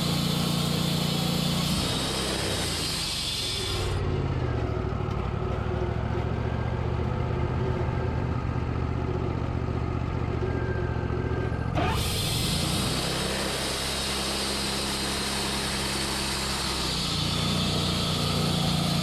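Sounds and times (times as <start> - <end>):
high hiss: 0.0 - 4.0
sawmill engine running: 0.0 - 19.0.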